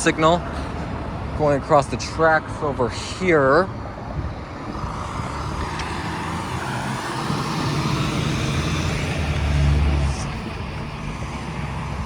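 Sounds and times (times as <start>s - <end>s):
street noise: 0.0s - 12.0s
vehicle passing by: 4.5s - 12.0s.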